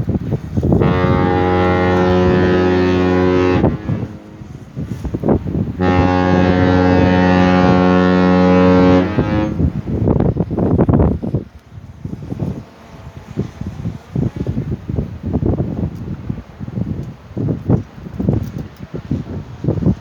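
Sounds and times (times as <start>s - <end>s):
wind buffeting microphone: 0.0s - 20.0s
deep ship horn blasts: 0.3s - 15.1s.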